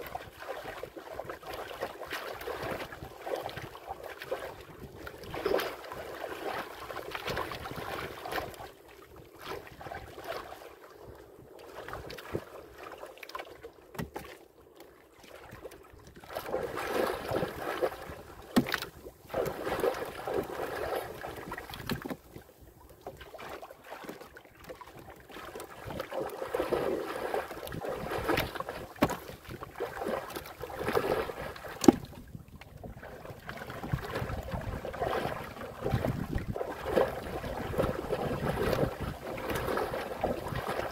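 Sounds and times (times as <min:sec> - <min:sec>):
water sloshing against boat hull: 0:00.0 - 0:40.9
wind on microphone: 0:04.4 - 0:05.9, 0:30.7 - 0:40.9.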